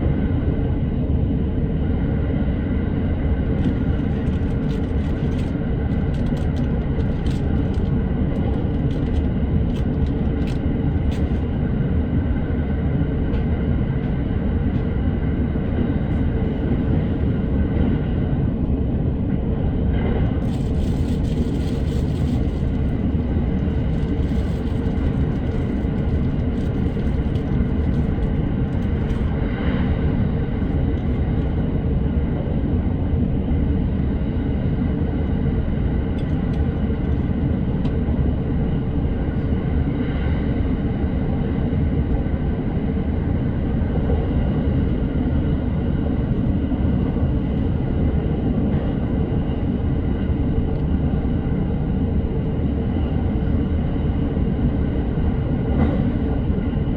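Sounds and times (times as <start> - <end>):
train wheels rumbling on rail: 3.4 - 11.9, 13.3 - 31.7, 55.8 - 56.8.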